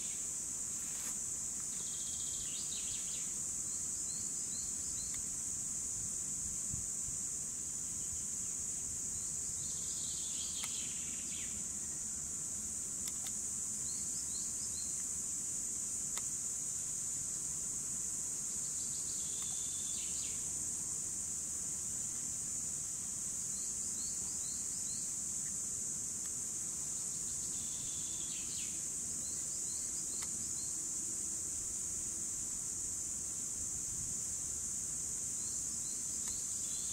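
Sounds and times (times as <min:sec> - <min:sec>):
cicadas buzzing: 0:00.0 - 0:36.9.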